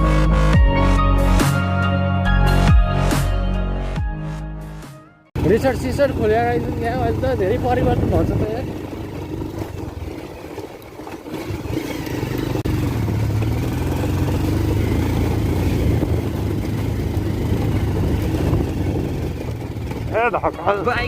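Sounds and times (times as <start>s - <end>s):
motorcycle engine straining uphill: 5.4s - 21.0s.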